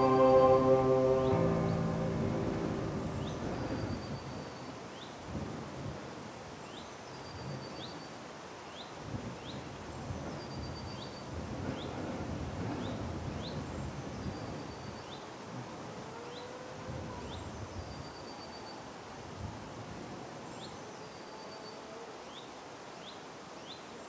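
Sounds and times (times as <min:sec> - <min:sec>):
steady rushing noise: 0:00.0 - 0:04.3.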